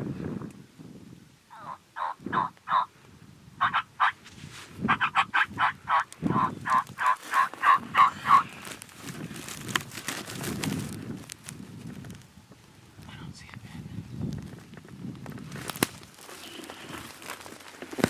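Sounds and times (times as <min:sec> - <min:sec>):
turkey yelping: 0:01.5 - 0:02.9, 0:03.6 - 0:04.2, 0:04.9 - 0:08.6.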